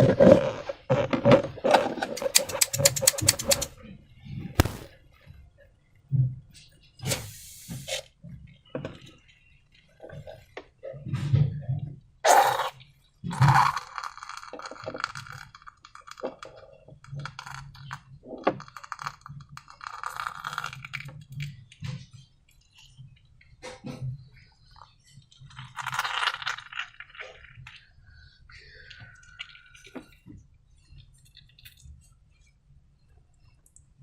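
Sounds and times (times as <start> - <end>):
slime squishing: 2.1 - 3.7
taps and clicks: 2.2 - 3.7, 4.6 - 4.9.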